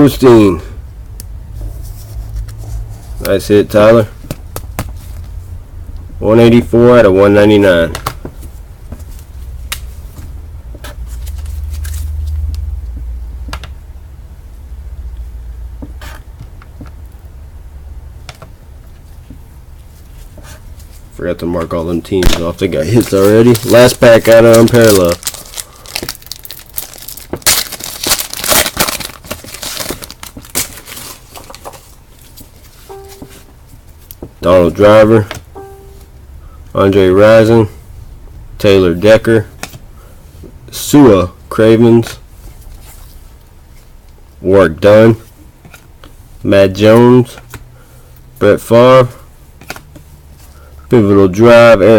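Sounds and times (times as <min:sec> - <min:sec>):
low steady rumble: 0:00.1 - 0:27.2
trading cards clicking and rustling: 0:21.6 - 0:33.5
wrapper tearing and crinkling: 0:22.3 - 0:31.9.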